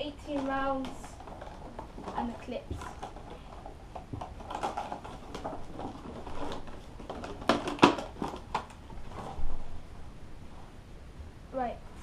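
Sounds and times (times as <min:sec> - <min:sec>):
plastic packaging rustling: 0:00.0 - 0:10.7
plastic parts clicking: 0:00.3 - 0:08.8.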